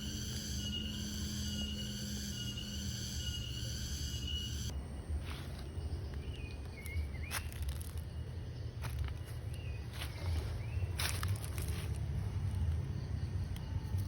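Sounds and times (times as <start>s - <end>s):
distant short whistled calls: 0.0s - 4.7s.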